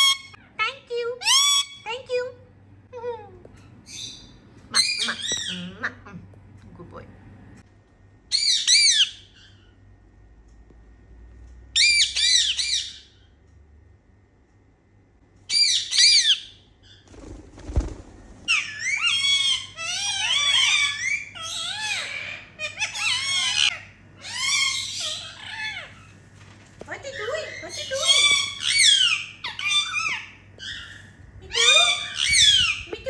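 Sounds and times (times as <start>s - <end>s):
parakeets chattering: 3.8s - 6.2s, 15.5s - 26.2s, 27.0s - 33.0s
parakeets squawking: 3.9s - 6.0s, 8.3s - 9.7s, 11.8s - 13.2s, 15.5s - 26.2s, 27.1s - 33.0s.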